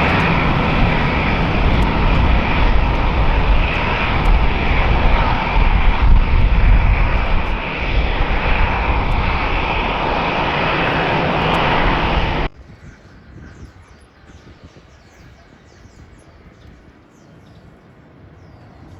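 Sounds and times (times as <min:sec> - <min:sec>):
passing airliner engine: 0:00.0 - 0:12.7.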